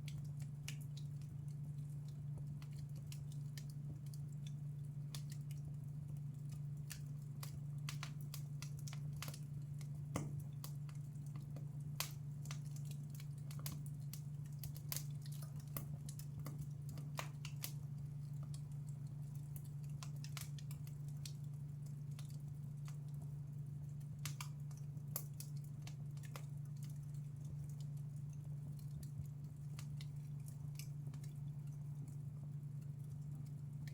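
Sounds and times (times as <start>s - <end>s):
fire crackling and popping: 0.0s - 33.9s.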